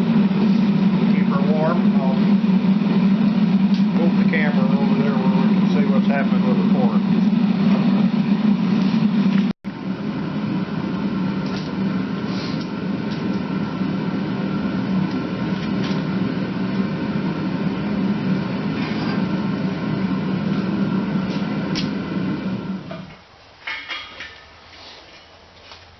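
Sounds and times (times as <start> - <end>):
furnace roaring: 0.0 - 25.9.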